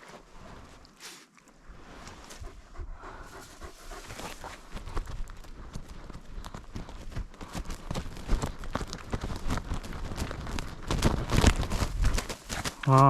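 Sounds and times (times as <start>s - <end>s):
footsteps crunching through brush: 3.2s - 13.0s.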